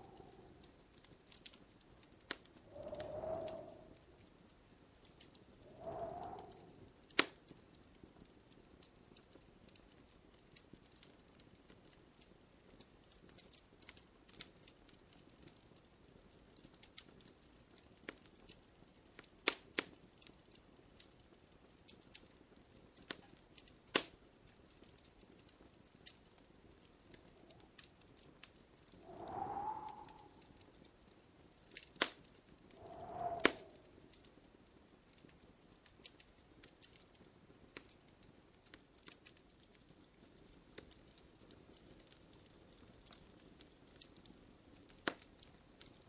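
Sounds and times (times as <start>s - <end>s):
wood fire crackling: 0.0s - 46.0s
whistling hiss: 2.6s - 4.0s, 5.6s - 6.8s, 29.0s - 30.6s, 32.7s - 33.9s.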